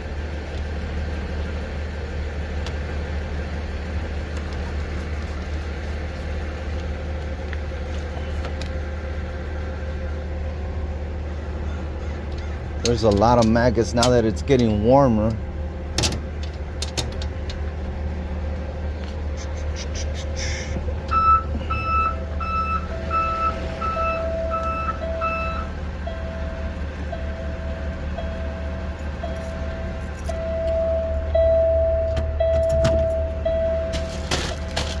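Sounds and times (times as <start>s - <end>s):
low engine rumble: 0.0s - 35.0s
low backup alarm beeping: 21.0s - 34.9s
high-pitched backup alarm beeping: 21.1s - 34.8s.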